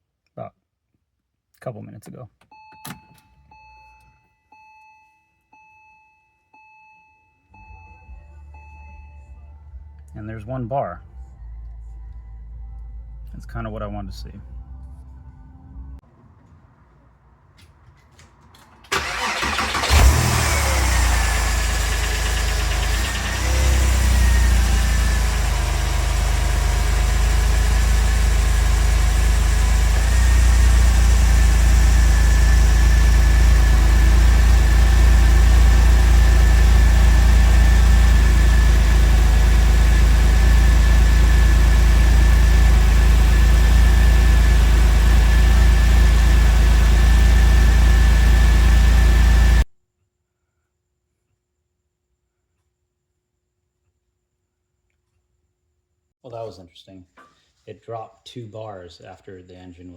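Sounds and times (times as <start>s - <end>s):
car engine idling: 18.8s - 49.6s.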